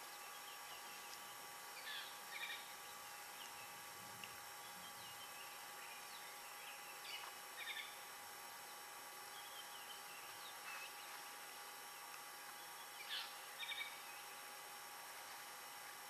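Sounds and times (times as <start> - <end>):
faint constant tones: 0.0 - 16.0
faint bird chirps: 4.6 - 8.0, 12.6 - 14.3.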